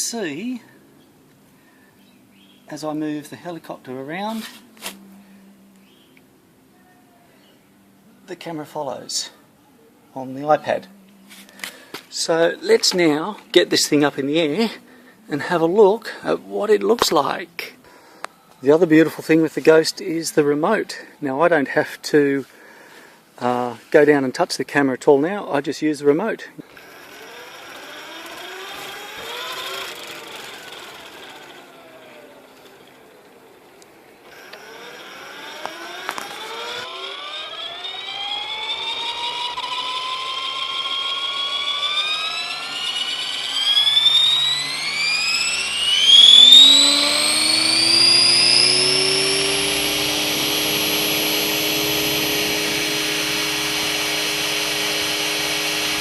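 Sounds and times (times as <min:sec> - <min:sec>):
model helicopter whine: 0:26.6 - 0:56.0.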